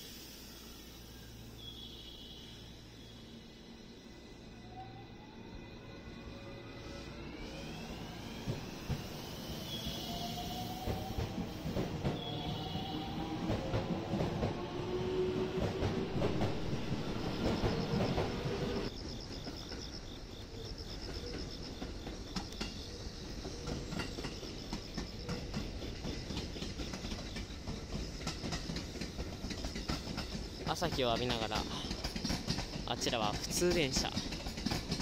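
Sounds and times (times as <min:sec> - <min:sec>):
electric train motors whining: 0:00.0 - 0:18.9
train wheels clicking over rail joints: 0:21.0 - 0:35.0.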